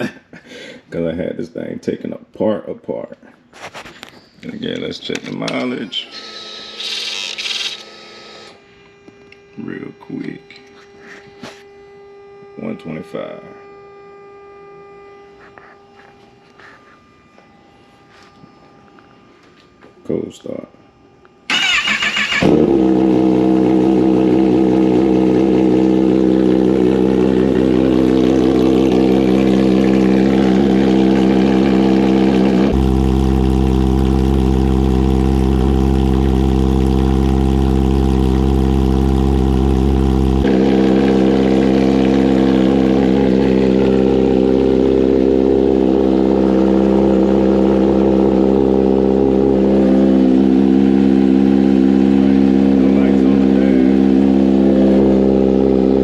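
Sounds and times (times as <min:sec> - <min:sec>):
motorcycle engine idling: 0:21.6 - 0:56.0
deep low rumble: 0:24.5 - 0:56.0.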